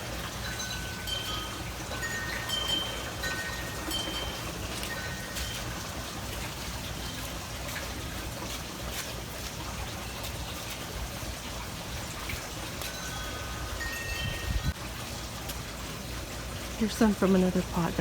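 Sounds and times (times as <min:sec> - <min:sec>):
wind chimes ringing: 0:00.0 - 0:07.7, 0:12.6 - 0:14.8
steady background hiss: 0:00.0 - 0:08.2, 0:10.0 - 0:18.0.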